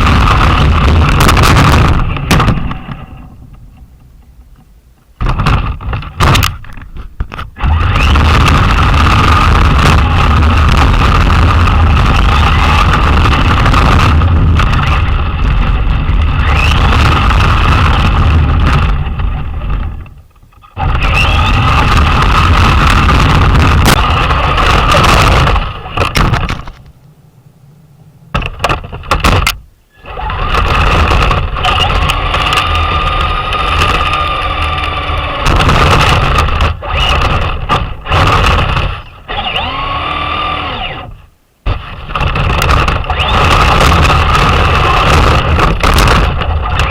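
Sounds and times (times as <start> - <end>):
rc truck chassis and tyres rumbling: 0.0 - 46.9
electric motor whine: 7.6 - 20.1, 20.8 - 46.9.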